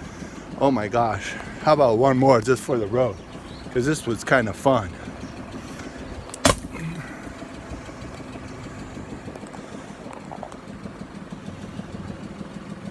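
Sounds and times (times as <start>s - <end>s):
engine idling hum: 0.0s - 12.9s
sharp strike on glass: 6.4s - 6.7s.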